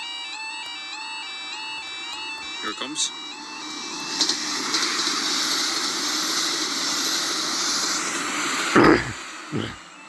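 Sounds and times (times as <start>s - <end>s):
train engine noise: 1.6s - 10.0s
wheels rushing on rail: 3.4s - 9.9s.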